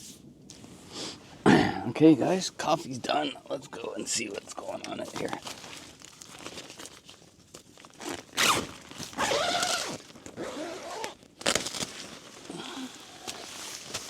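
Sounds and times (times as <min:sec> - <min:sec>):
tent fabric rustling: 0:04.2 - 0:14.0
tent zipper pulled open: 0:07.9 - 0:12.5.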